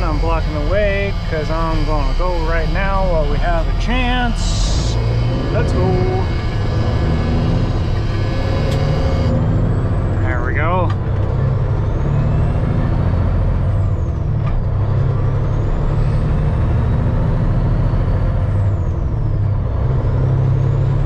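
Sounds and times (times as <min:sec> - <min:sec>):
thin high whine: 0:00.0 - 0:09.3
diesel truck engine pulling away: 0:00.0 - 0:21.0.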